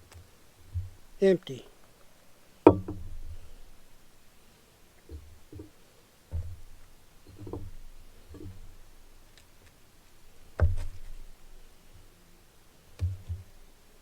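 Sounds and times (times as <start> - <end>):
handling thumps: 0.0 - 1.9, 2.6 - 4.1, 5.0 - 11.6
sharp handling knock: 2.7 - 3.7, 10.6 - 11.2.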